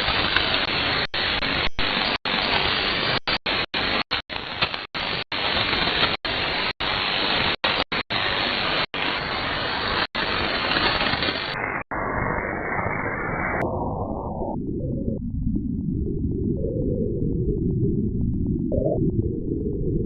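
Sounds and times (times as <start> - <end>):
radio static hiss: 0.0 - 14.4.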